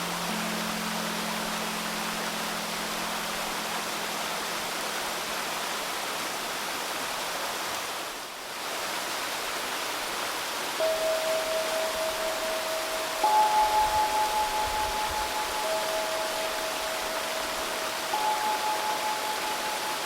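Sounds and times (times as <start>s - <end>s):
pure sustained tone: 0.0s - 5.8s, 10.8s - 20.0s
shallow river babbling: 0.0s - 6.9s, 10.4s - 20.0s.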